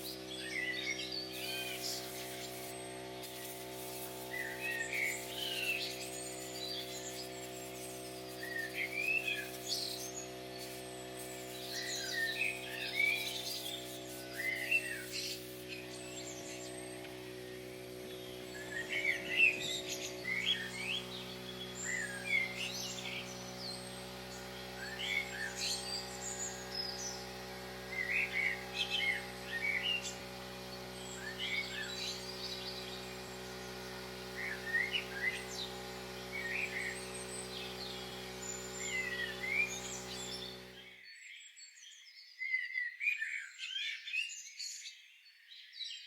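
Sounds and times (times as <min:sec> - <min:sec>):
small birds chirping: 0:00.0 - 0:46.0
low drone: 0:10.5 - 0:40.5.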